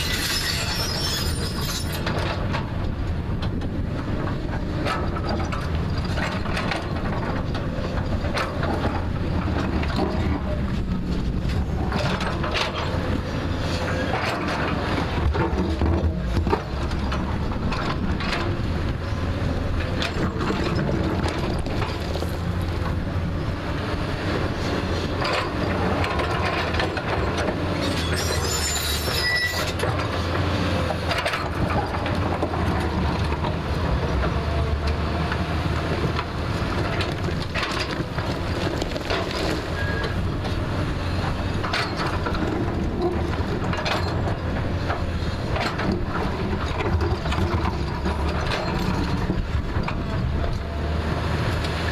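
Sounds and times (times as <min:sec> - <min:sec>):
metallic squeal: 0:00.0 - 0:02.1, 0:27.8 - 0:29.8, 0:39.7 - 0:40.2
diesel engine running under load: 0:01.4 - 0:29.1, 0:29.7 - 0:51.9.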